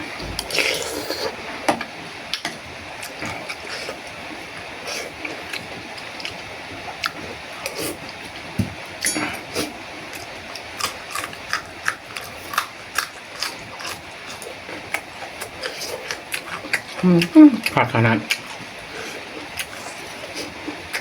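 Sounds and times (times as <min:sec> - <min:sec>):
person chewing: 0:00.4 - 0:01.4, 0:09.0 - 0:21.0.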